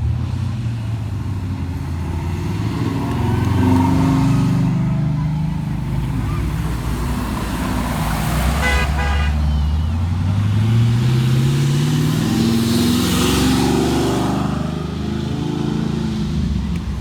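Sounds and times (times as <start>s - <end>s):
car engines passing: 0.0s - 17.0s
car horn toots: 8.5s - 9.9s.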